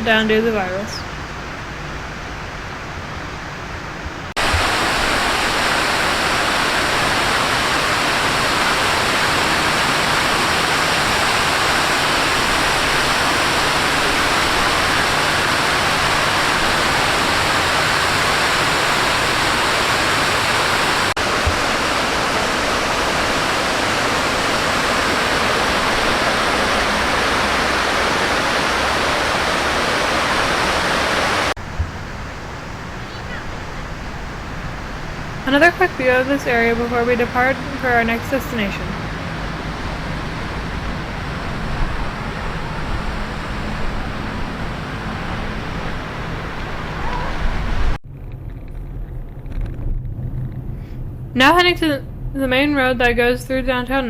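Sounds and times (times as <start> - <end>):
fountain water splashing: 4.3 - 48.0.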